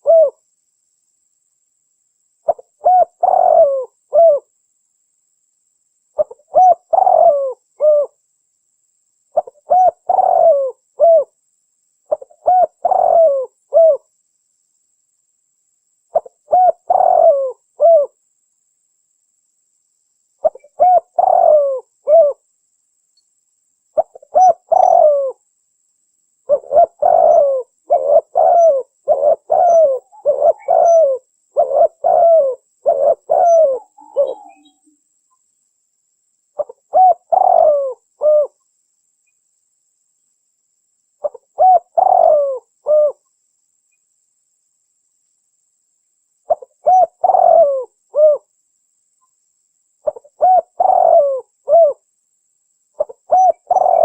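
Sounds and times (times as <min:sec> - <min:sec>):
dove cooing: 0:00.0 - 0:00.4, 0:02.4 - 0:04.5, 0:06.2 - 0:08.2, 0:09.3 - 0:11.3, 0:12.1 - 0:14.1, 0:16.1 - 0:18.2, 0:20.4 - 0:22.4, 0:24.0 - 0:25.4, 0:26.5 - 0:34.9, 0:36.6 - 0:38.6, 0:41.2 - 0:43.2, 0:46.5 - 0:48.5, 0:50.0 - 0:52.0, 0:53.0 - 0:54.0.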